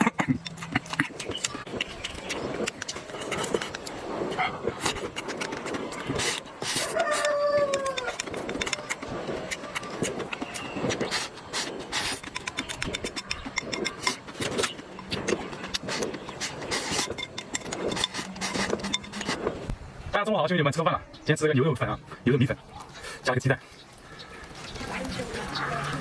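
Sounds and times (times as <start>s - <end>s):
chewing and utensil clicks: 0.0s - 4.0s, 4.8s - 19.5s.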